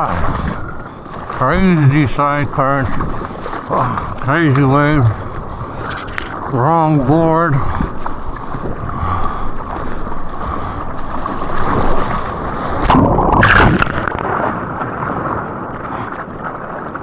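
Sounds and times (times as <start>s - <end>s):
water splashing and rushing: 0.0s - 17.0s
rushing whitewater surge: 9.7s - 17.0s.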